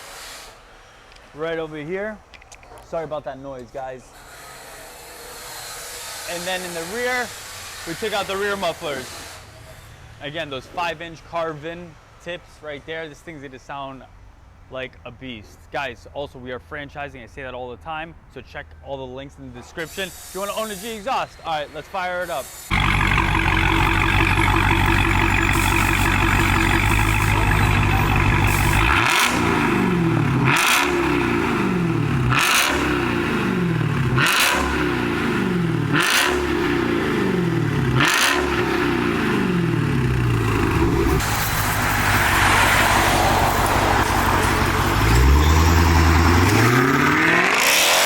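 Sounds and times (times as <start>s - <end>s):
car engine idling and revving: 22.6s - 48.0s.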